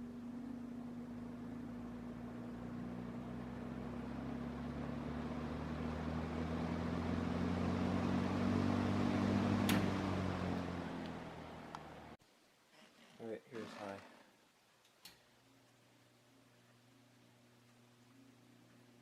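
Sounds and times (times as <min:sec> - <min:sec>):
fan motor hum and air rush: 0:00.0 - 0:12.2.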